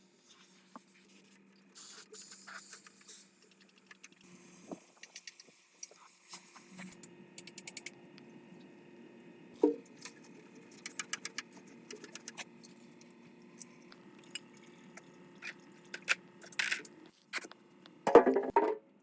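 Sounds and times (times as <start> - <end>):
metal parts and tools clinking: 15.4 - 17.5.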